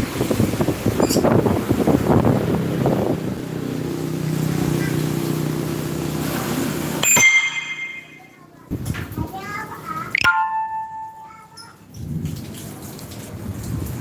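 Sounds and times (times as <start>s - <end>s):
wind rumbling on microphone: 0.0s - 3.8s, 11.9s - 14.0s.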